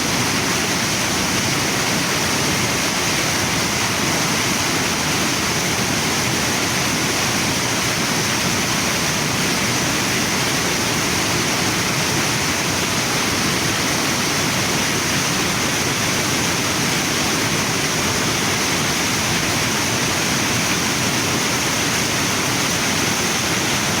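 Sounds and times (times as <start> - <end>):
waterfall and river rushing: 0.0 - 24.0.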